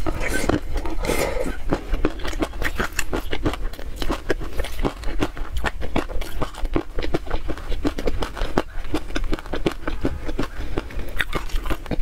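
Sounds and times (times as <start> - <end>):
wet chewing smacks: 0.0 - 12.0.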